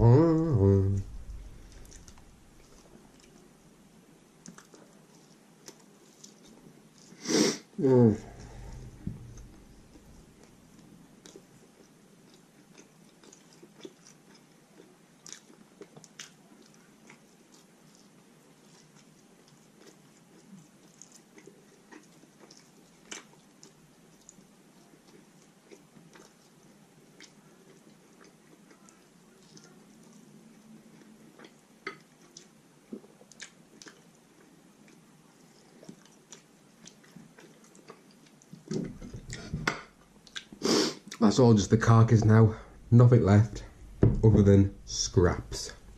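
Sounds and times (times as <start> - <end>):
chewing and biting food: 4.4 - 7.2, 8.3 - 39.5.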